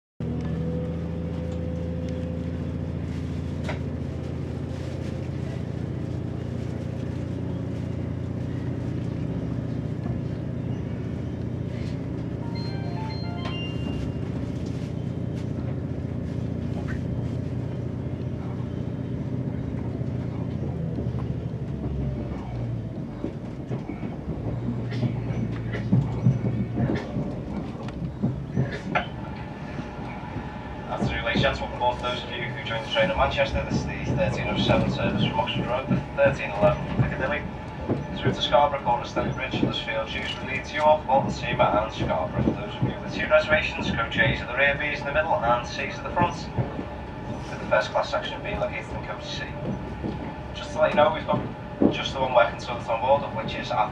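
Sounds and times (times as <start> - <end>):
diesel train engine running: 0.2 - 53.9
wheels clacking over rail joints: 8.0 - 53.9.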